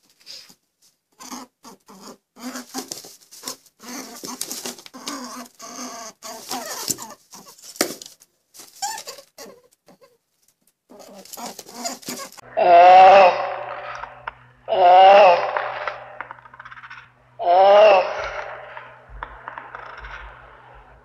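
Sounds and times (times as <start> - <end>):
short pitched animal calls: 10.9 - 21.0.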